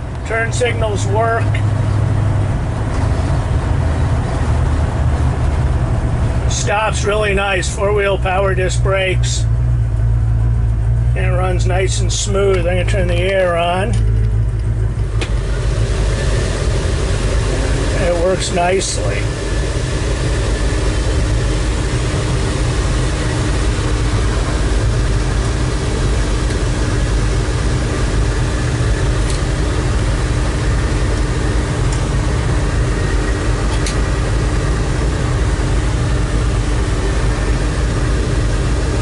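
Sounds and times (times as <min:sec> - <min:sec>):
car engine rumbling: 0:00.0 - 0:39.0.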